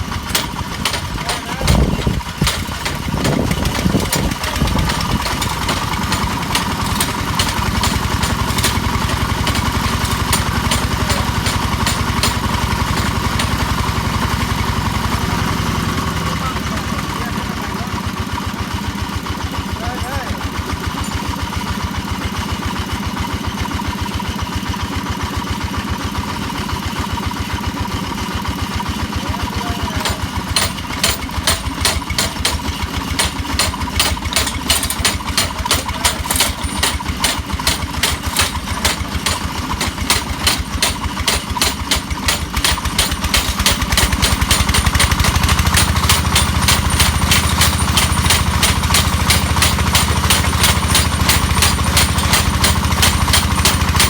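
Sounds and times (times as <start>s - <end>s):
engine running: 0.0s - 54.0s
hammer striking rapidly: 0.1s - 14.1s, 29.9s - 54.0s.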